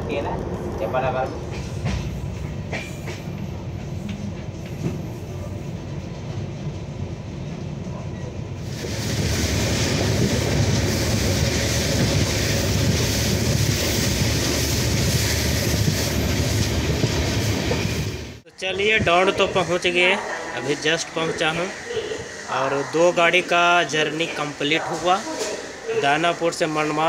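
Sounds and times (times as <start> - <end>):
train wheels rumbling inside coach: 0.0 - 20.6
wind rushing: 8.6 - 23.8.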